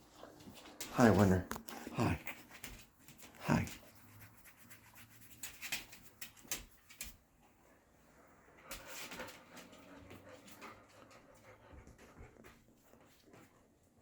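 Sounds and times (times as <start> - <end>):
dogs moving scuffs and clicks: 0.0 - 7.5, 8.6 - 14.0.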